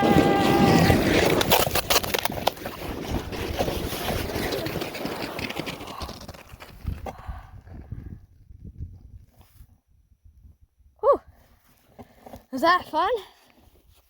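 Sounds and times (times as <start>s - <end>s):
sled knocking over bumps: 0.0s - 7.2s
sled scraping on snow: 0.0s - 7.4s
wind on microphone: 6.5s - 11.4s.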